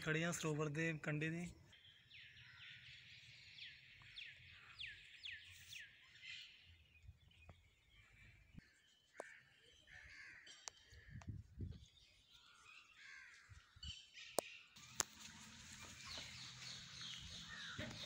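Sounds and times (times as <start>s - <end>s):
faint bird calls: 7.8s - 11.4s.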